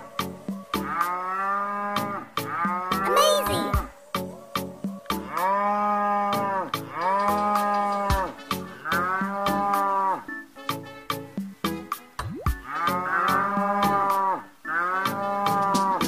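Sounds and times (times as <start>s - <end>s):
toy cow electronic moo: 0.8s - 3.7s, 5.2s - 10.4s, 12.6s - 16.0s.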